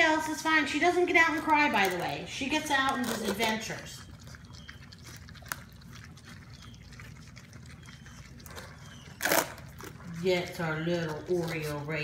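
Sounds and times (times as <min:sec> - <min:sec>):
puppies lapping and smacking food: 0:00.0 - 0:12.0
faint puppy squeaks: 0:04.0 - 0:05.2, 0:06.4 - 0:10.2.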